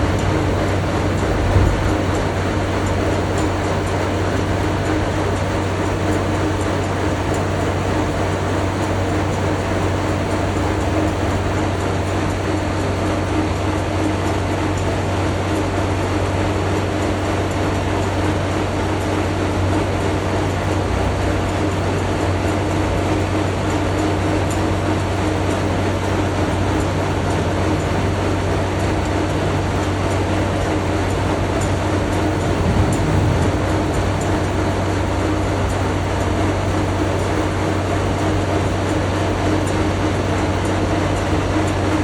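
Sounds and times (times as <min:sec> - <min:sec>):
machinery droning: 0:00.0 - 0:12.6, 0:26.7 - 0:42.0.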